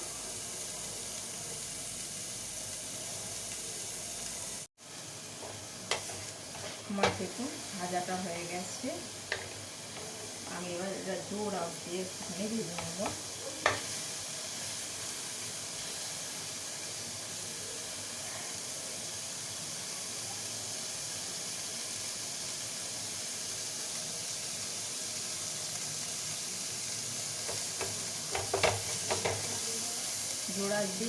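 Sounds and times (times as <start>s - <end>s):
meat sizzling in a pan: 0.0s - 31.0s
utensil clicking against pan: 27.5s - 29.5s.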